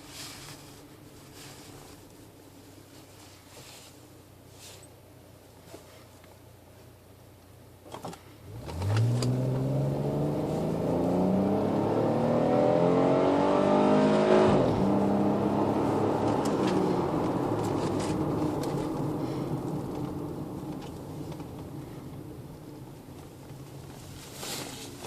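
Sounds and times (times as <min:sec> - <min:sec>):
car exhaust accelerating: 0:08.4 - 0:25.0.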